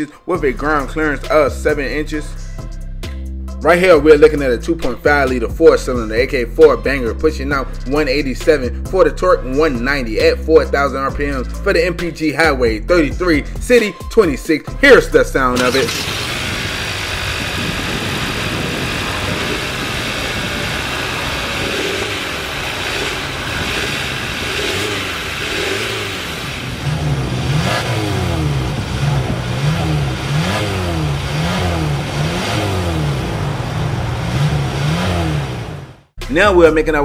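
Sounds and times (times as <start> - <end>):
car engine idling and revving: 15.4 - 36.2.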